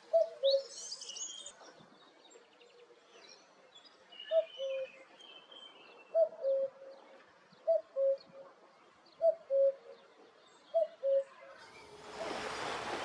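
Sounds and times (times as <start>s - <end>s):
cuckoo calls: 0.0s - 1.5s, 4.2s - 5.1s, 6.1s - 6.9s, 7.6s - 8.5s, 9.2s - 10.0s, 10.7s - 12.5s.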